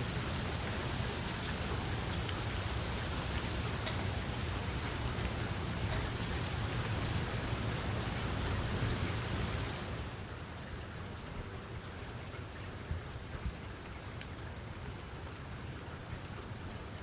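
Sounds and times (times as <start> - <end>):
single raindrops ticking: 0.0 - 10.2
steady rain falling: 0.0 - 17.0.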